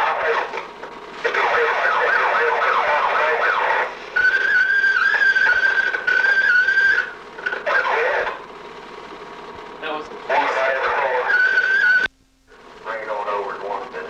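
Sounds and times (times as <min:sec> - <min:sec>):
police siren: 0:00.0 - 0:08.5, 0:10.3 - 0:12.1.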